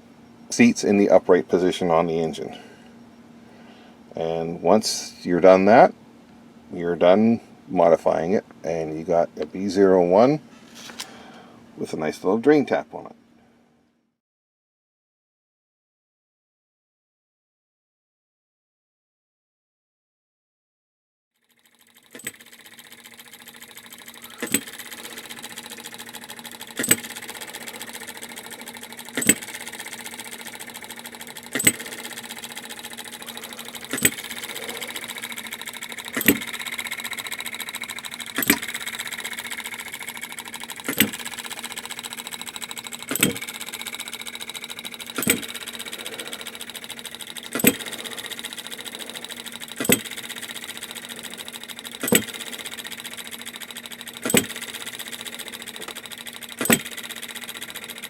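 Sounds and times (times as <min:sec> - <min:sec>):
small machine humming: 0:00.0 - 0:13.7, 0:21.4 - 0:58.0
sharp repeating click: 0:22.1 - 0:58.0.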